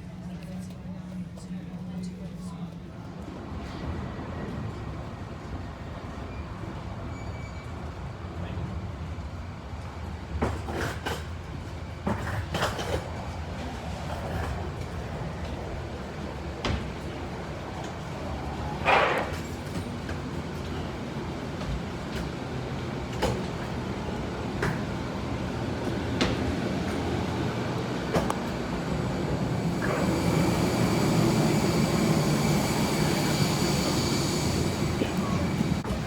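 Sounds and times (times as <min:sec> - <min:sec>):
airliner hum: 0:20.5 - 0:36.0
steady high whine: 0:27.7 - 0:36.0.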